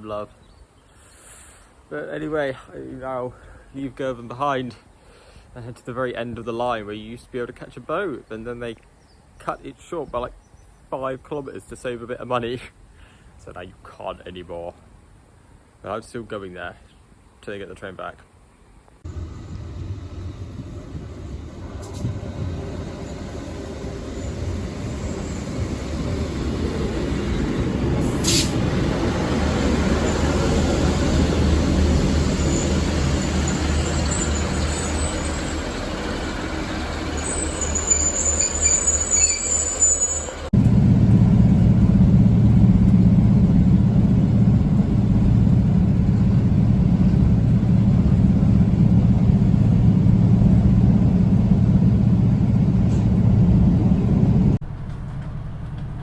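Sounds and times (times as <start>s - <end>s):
low engine hum: 19.0s - 38.3s, 40.3s - 56.0s
diesel train rumbling: 19.0s - 56.0s
wheel or brake squeal: 22.9s - 25.7s, 32.0s - 40.5s.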